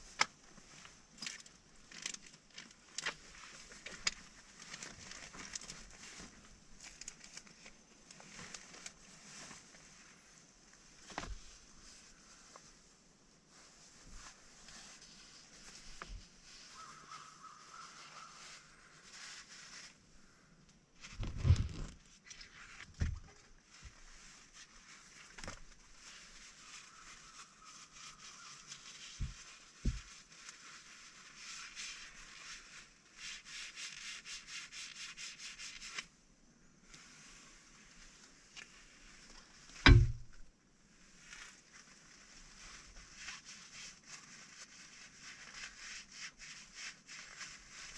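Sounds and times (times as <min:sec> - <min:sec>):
rustling and rubbing: 0:00.0 - 0:20.4, 0:21.0 - 0:36.2, 0:36.8 - 0:47.9
dull thumps: 0:39.8 - 0:40.5.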